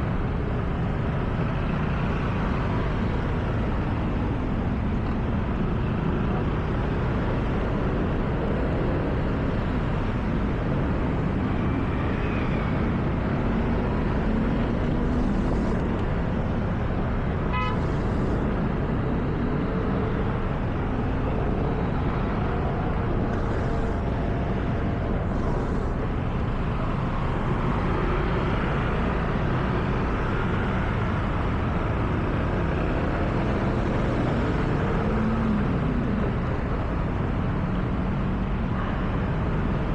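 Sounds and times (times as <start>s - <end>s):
car driving on wet road: 13.6s - 38.7s.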